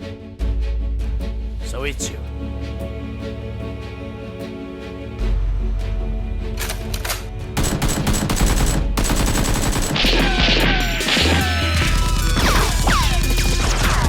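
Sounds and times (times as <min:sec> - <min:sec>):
action music with heavy bass: 0:06.6 - 0:14.0
gunfire sound effects: 0:07.6 - 0:11.8.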